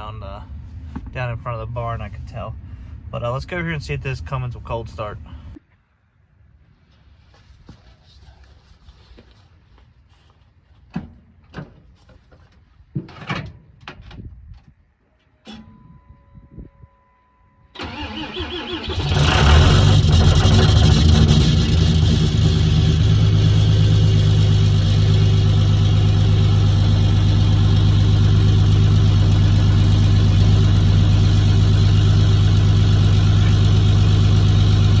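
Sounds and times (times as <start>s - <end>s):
diesel engine cranking and idling: 17.7s - 35.0s.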